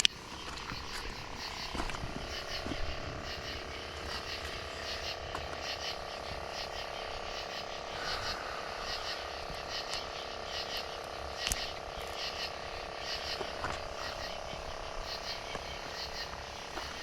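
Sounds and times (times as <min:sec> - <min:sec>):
frogs calling in chorus: 0:00.0 - 0:17.0.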